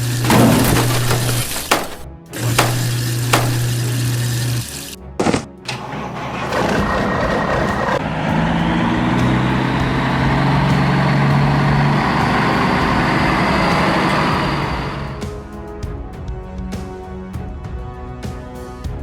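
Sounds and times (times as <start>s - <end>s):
heavy truck engine running: 5.7s - 15.2s.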